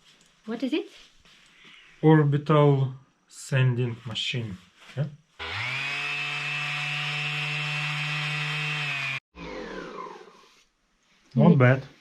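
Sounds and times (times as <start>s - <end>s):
electric orbital sander running: 5.4s - 10.6s.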